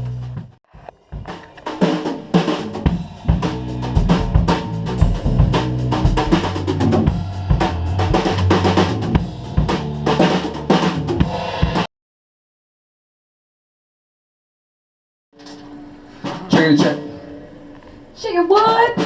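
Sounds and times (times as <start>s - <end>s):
drum kit beat: 0.0s - 11.9s, 16.2s - 17.3s
sustained low notes: 2.7s - 11.2s.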